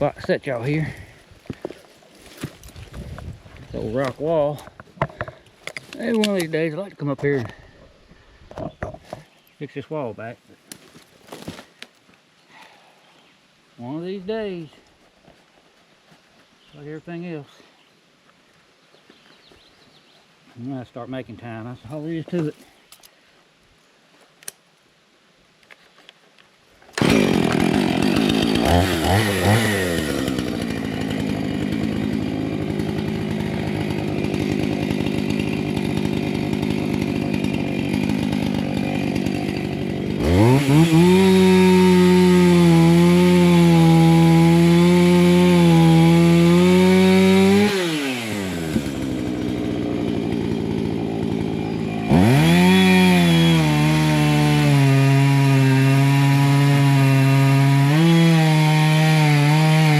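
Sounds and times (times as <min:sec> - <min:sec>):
chainsaw revving: 0:27.0 - 0:59.9.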